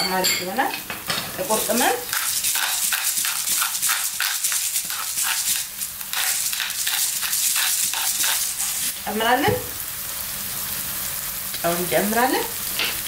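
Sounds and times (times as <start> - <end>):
onion and garlic sizzling in oil: 0.0 - 13.0.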